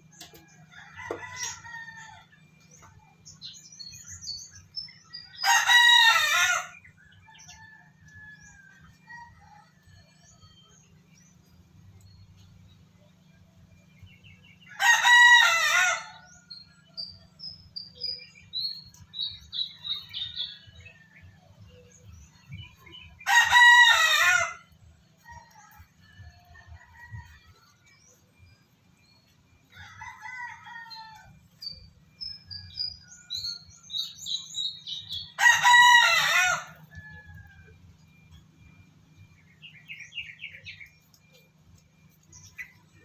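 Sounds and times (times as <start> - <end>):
small birds chirping: 0.0 - 43.0.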